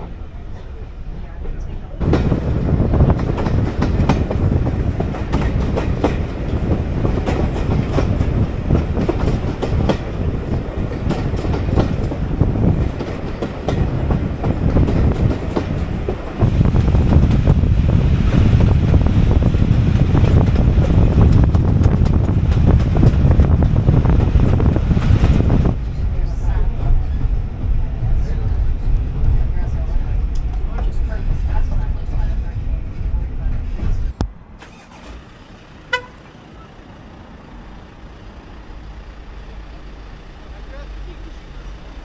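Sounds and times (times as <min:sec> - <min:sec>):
train carriage rumble: 0:00.0 - 0:42.0
wheels clacking over rail joints: 0:02.0 - 0:17.6.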